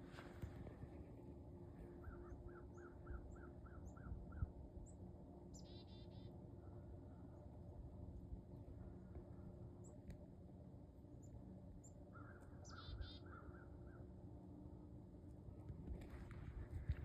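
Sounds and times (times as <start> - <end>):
faint steady hum: 0.0 - 17.0
faint birdsong chirps: 0.1 - 8.2, 11.0 - 14.3.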